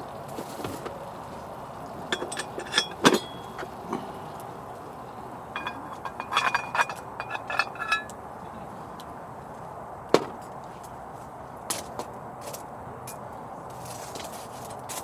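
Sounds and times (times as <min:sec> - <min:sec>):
cookware clinking: 0:02.1 - 0:04.1, 0:05.5 - 0:08.2.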